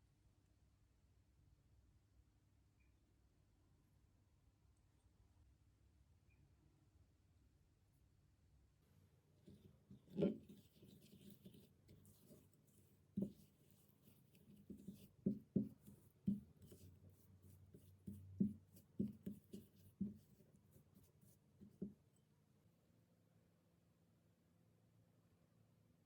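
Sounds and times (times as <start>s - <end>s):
utensil scraping: 9.4s - 21.9s.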